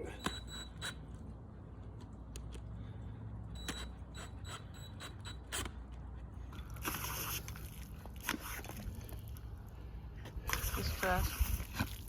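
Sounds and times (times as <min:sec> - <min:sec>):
water spraying from hose: 0:06.6 - 0:09.2, 0:10.4 - 0:12.0.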